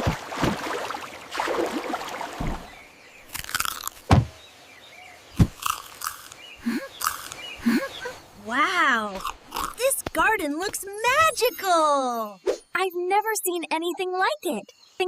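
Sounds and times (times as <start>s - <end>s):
bird chirps: 4.3s - 8.4s, 10.2s - 15.0s.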